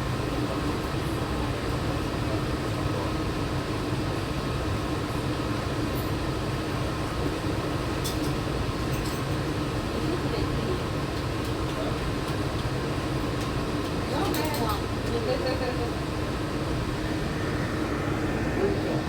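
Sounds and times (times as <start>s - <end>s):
monorail car hum and rumble: 9.0s - 19.0s.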